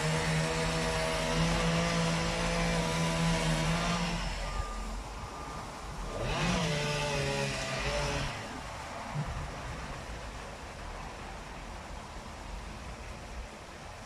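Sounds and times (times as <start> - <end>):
engine revving: 6.1 - 8.5.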